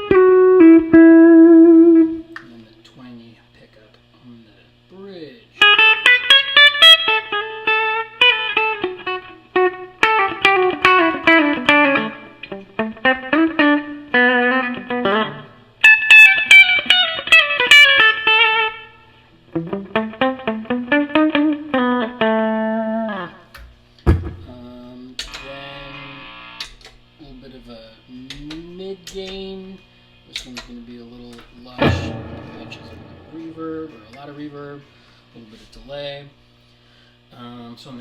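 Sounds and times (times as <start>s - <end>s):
clean electric guitar phrases: 0.0s - 2.4s, 5.6s - 18.9s, 19.5s - 23.4s, 31.5s - 35.0s
low thump: 31.8s - 34.0s.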